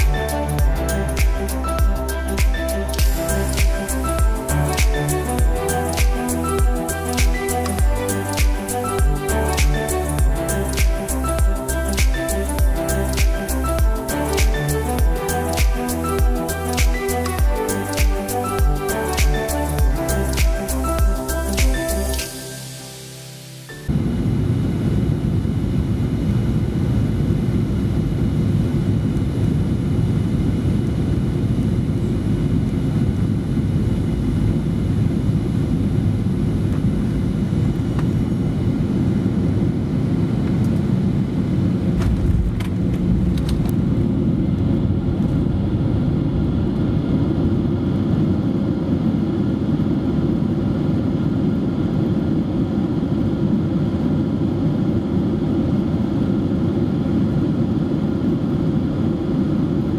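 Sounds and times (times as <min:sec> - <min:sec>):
aircraft cabin rumble: 0:23.9 - 0:54.2
low thump: 0:42.0 - 0:43.6.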